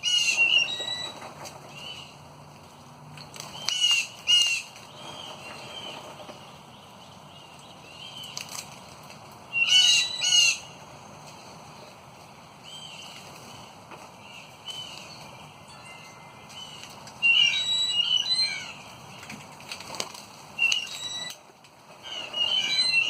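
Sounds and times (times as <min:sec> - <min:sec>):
loud short high bird calls: 0:16.5 - 0:19.2, 0:22.0 - 0:23.0.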